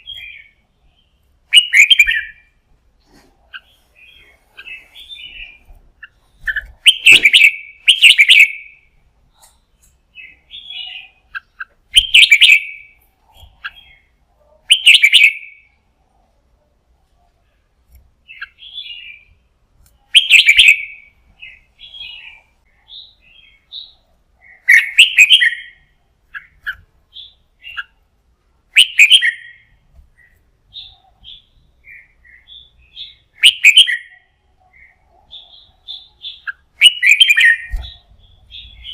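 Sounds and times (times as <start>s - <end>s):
bird singing warbled phrases: 0.0s - 16.4s, 17.1s - 38.9s
soft bird chirps: 0.0s - 28.1s, 28.7s - 38.9s.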